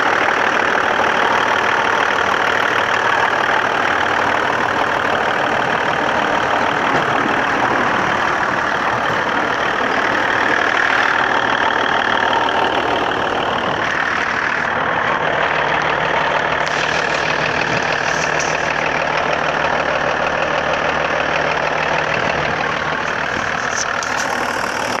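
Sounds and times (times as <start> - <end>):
diesel engine running: 0.0 - 25.0
engine knocking: 0.0 - 25.0.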